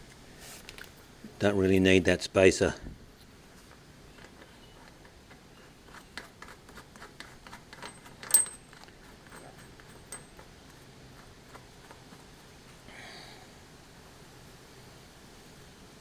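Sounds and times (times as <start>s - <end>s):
small metal parts clinking: 7.4s - 10.5s
ringing metallic clink: 7.8s - 10.4s.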